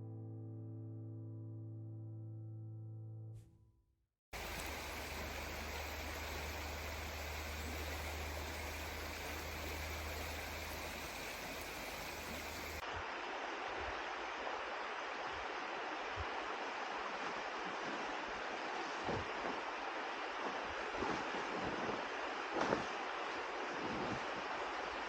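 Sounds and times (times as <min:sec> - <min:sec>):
river water rushing: 0:04.4 - 0:21.0.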